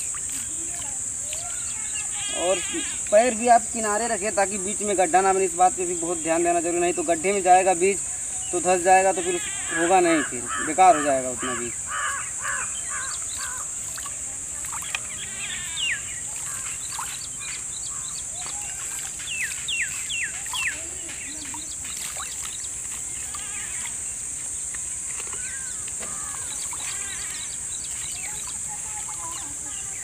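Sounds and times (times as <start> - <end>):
steady high hiss: 0.0 - 30.0
bird chirp: 11.4 - 23.9, 25.2 - 30.0.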